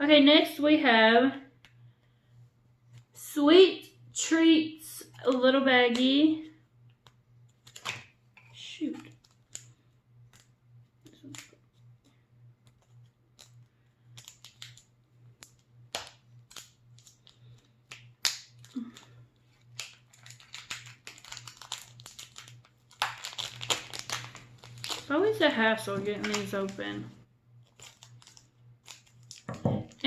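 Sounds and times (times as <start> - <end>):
faint low hum: 0.0 - 30.0
plastic packaging crinkling: 7.0 - 11.8, 12.7 - 30.0.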